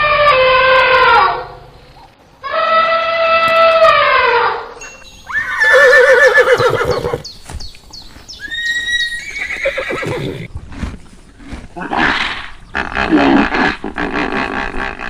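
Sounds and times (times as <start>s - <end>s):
horse neighing: 5.3s - 7.3s, 8.4s - 10.5s.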